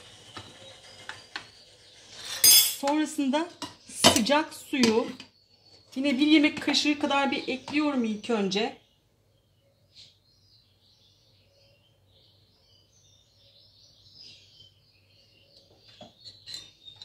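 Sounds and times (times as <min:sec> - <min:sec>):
small birds chirping: 0:00.0 - 0:17.0
metal spoon clinks: 0:02.4 - 0:02.9.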